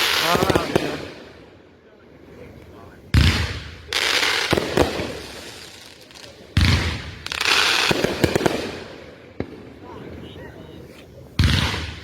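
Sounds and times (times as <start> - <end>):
firework crackling and pops: 0.0 - 1.3, 3.2 - 9.8.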